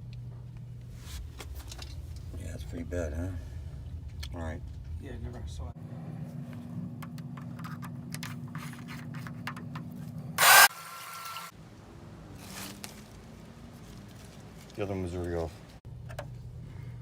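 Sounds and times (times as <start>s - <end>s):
low mechanical hum: 0.0s - 17.0s
loud burst of noise: 10.4s - 11.5s.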